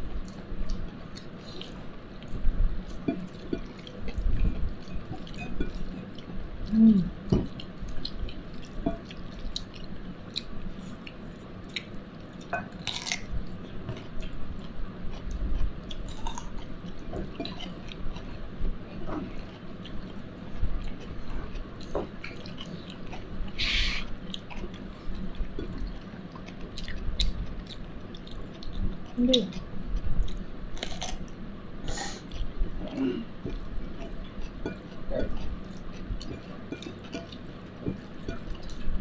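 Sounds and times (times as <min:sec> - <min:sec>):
person chewing food: 0:00.2 - 0:39.0
hissy noises: 0:23.6 - 0:24.1.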